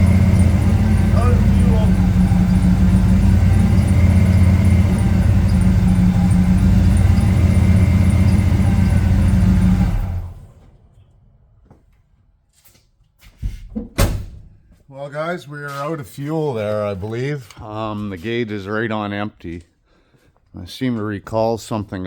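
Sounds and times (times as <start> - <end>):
pickup truck engine running: 0.0 - 11.4.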